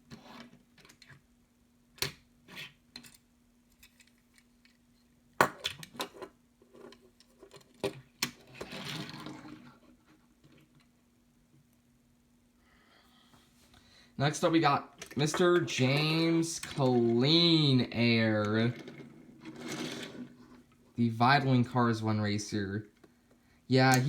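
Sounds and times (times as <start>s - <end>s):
rustling scrape: 18.7s - 20.7s.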